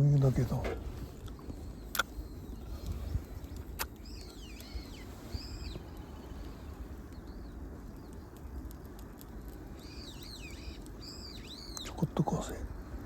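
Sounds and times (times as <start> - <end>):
bird calling: 0.0 - 7.5, 9.7 - 12.6
steady low rumble: 0.0 - 13.0.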